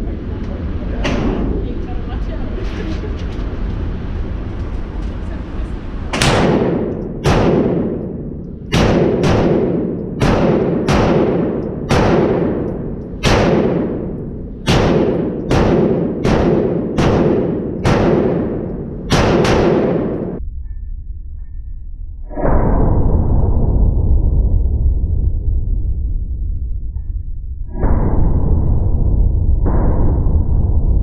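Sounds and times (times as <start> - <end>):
pistol shots echoing: 6.2 - 20.4.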